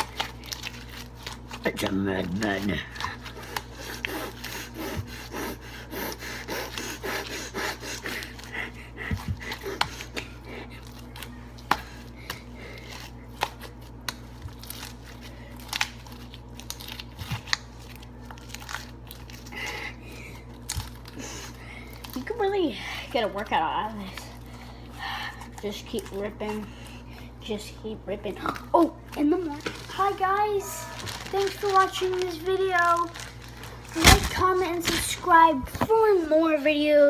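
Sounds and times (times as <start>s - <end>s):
slime crackling and popping: 10.8s - 19.8s, 28.4s - 35.9s.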